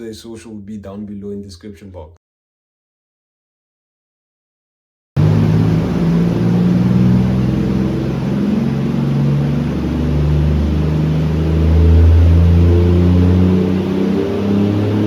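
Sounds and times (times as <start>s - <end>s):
car engine running on a dyno: 5.2s - 15.0s.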